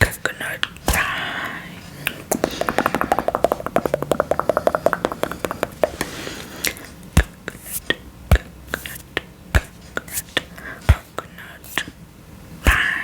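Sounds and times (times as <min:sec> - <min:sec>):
fingernail tapping on coconut shell: 0:02.3 - 0:06.1.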